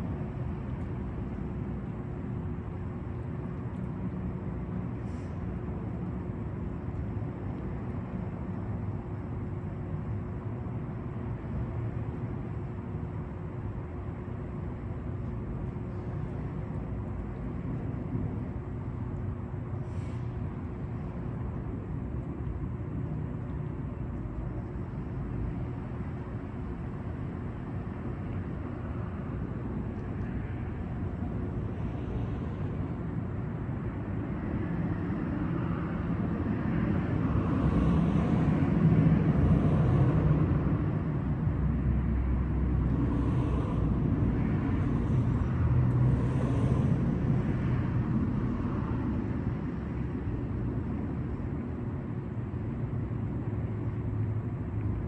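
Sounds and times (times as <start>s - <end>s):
low rumble of motor traffic: 0.0s - 55.0s
vehicle passing: 42.7s - 49.4s.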